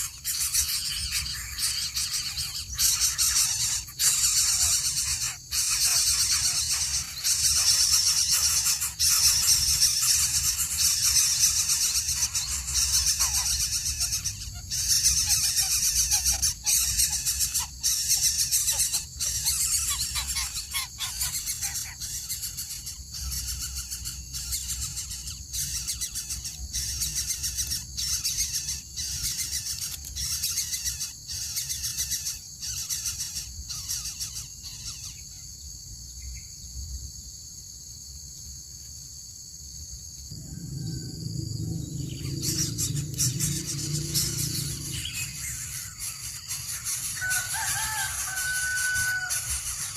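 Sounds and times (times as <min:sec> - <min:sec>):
bird giving harsh hissing screeches: 0:42.0 - 0:49.9.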